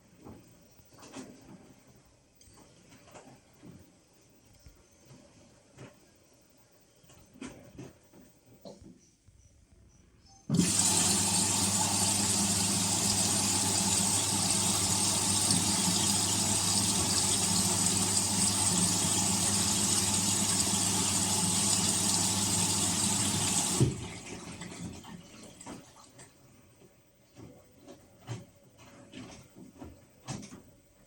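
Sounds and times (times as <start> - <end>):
faint small clicks and rustles: 0.1 - 10.4, 25.4 - 31.0
electrical hum: 10.5 - 24.6
washing machine running water: 10.5 - 26.3.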